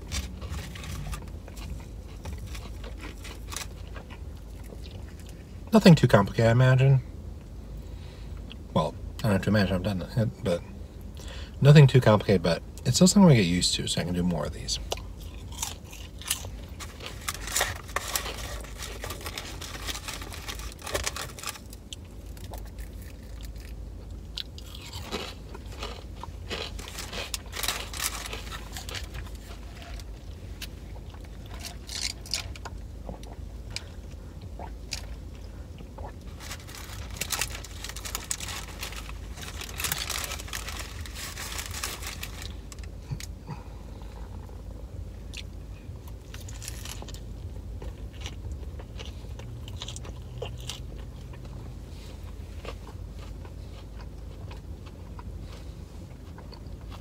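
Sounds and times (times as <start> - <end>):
person chewing crunchy food: 0.0 - 5.5, 14.8 - 44.7, 45.3 - 57.0.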